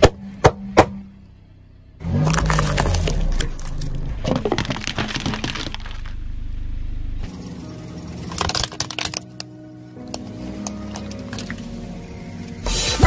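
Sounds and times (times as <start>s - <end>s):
low rumble: 0.3s - 8.7s
tyre crushing brittle objects: 2.0s - 6.2s, 8.2s - 11.7s.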